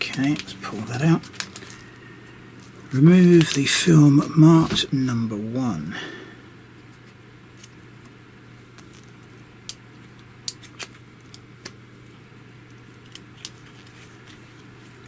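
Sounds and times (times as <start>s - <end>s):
steady low hum: 0.0s - 15.0s
plastic film clicking while peeled: 1.2s - 1.8s.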